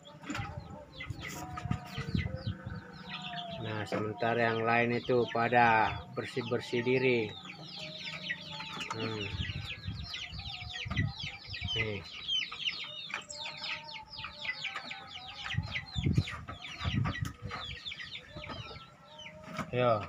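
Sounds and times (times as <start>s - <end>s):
birds peeping: 0.0s - 20.0s.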